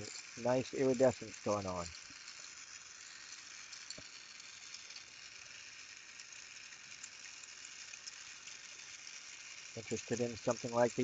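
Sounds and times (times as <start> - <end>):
torch flame hissing: 0.0 - 3.2, 9.7 - 11.0.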